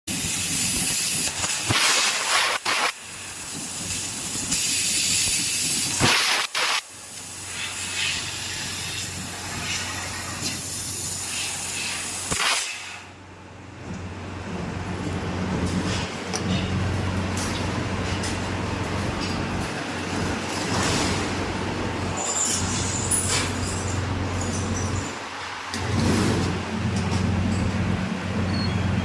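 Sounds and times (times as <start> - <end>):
laser cutter hissing: 0.1 - 13.1.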